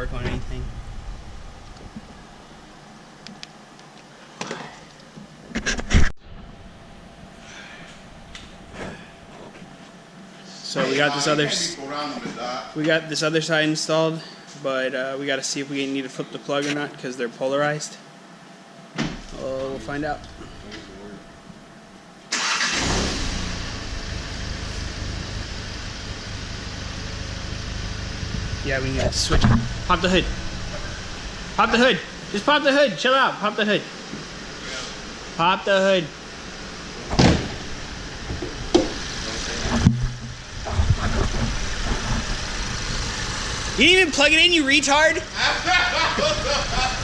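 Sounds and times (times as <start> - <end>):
car engine starting and running: 22.3 - 32.5, 36.1 - 47.0
knocks and clatter: 39.6 - 42.5.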